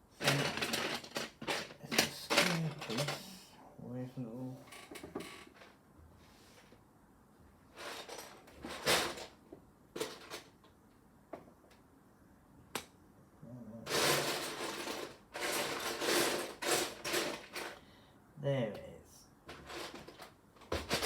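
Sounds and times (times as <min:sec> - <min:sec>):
plastic pieces rattling by hand: 0:00.2 - 0:03.4, 0:13.9 - 0:17.8, 0:19.5 - 0:21.0.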